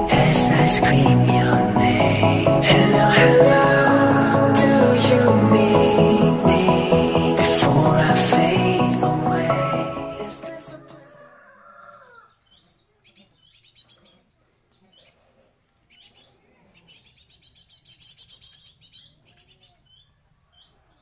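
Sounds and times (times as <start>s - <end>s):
bird chirping: 12.0s - 21.0s.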